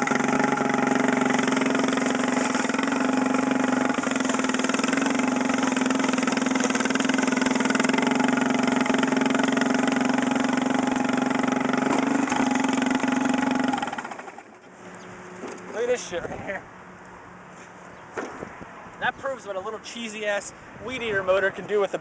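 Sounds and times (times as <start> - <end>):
small engine running: 0.0 - 16.1.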